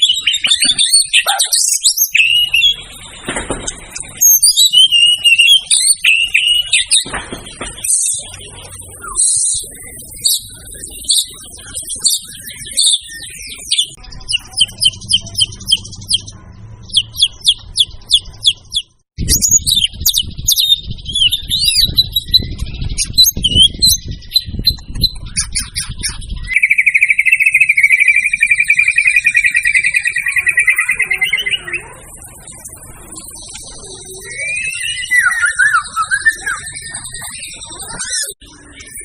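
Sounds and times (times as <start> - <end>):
songbird chips and whistles: 0.0 - 3.0, 3.9 - 7.2, 16.9 - 32.0, 33.0 - 39.0
fast bird trill: 0.0 - 39.0.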